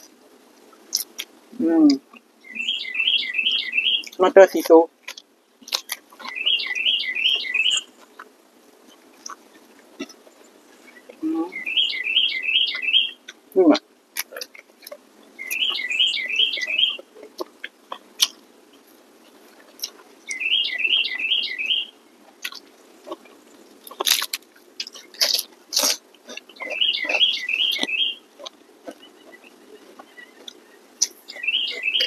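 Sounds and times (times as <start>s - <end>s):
close-up chewing with clicks: 0.0s - 32.0s
songbird chirping: 0.0s - 32.0s
loud crunches: 22.4s - 32.0s.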